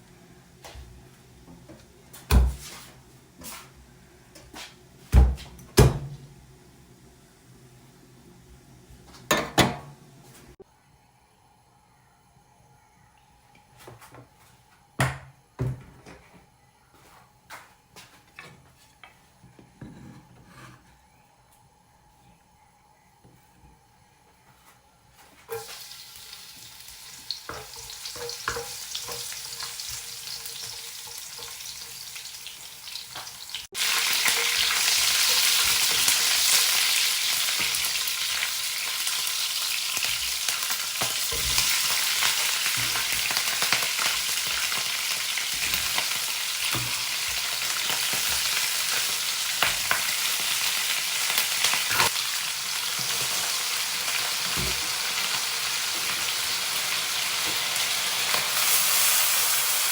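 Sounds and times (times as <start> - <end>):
food sizzling in a pan: 25.5 - 59.9.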